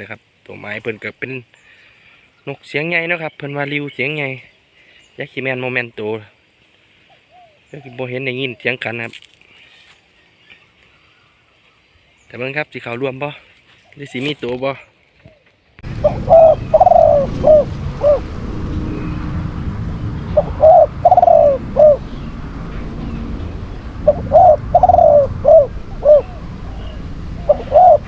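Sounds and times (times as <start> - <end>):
dove cooing: 15.2 - 18.3, 20.3 - 28.0
steady low rumble: 15.8 - 28.0.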